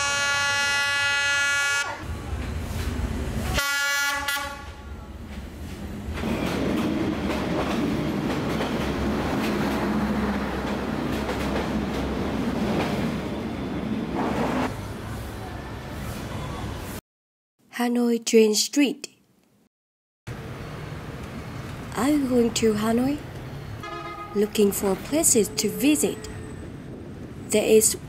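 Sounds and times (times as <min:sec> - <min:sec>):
diesel locomotive horn: 0:00.0 - 0:02.1, 0:03.5 - 0:05.0, 0:23.8 - 0:24.6
train carriages rolling past: 0:02.0 - 0:03.6, 0:04.5 - 0:17.0, 0:20.3 - 0:28.0
wheels clacking on track: 0:05.3 - 0:13.1.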